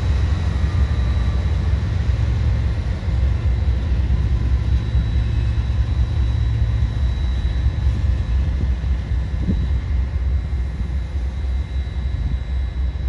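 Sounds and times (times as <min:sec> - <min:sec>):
heavy vehicle rumble: 0:00.0 - 0:06.9.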